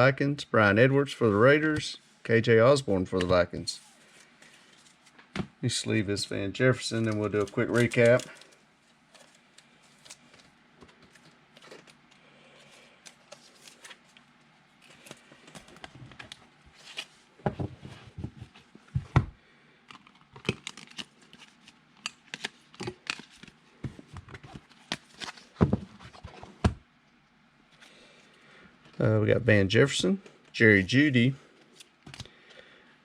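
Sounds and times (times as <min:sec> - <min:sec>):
plastic sleeve rustling: 0:06.8 - 0:17.2.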